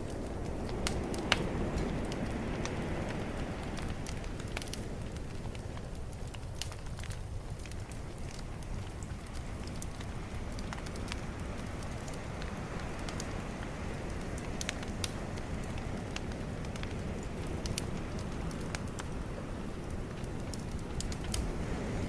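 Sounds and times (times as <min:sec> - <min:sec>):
bonfire crackling: 0:00.0 - 0:22.0.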